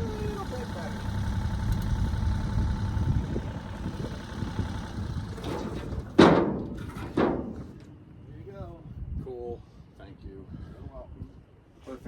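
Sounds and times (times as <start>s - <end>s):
diesel engine idling: 0.0s - 6.1s.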